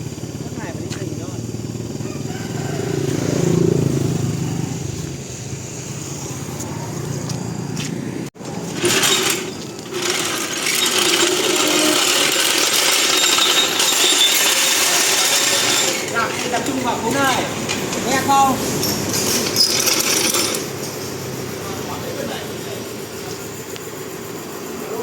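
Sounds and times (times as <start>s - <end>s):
wind and road noise: 0.0s - 10.8s, 16.0s - 25.0s
motorbike engine hum: 0.0s - 25.0s.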